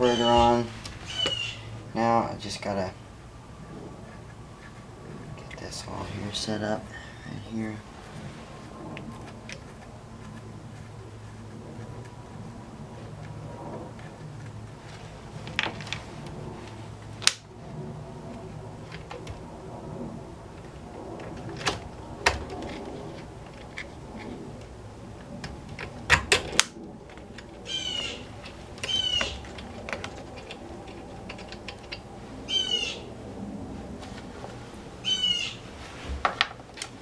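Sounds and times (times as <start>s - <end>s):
bird calling: 0.0s - 1.8s, 27.6s - 29.6s, 31.9s - 33.1s, 35.0s - 35.6s.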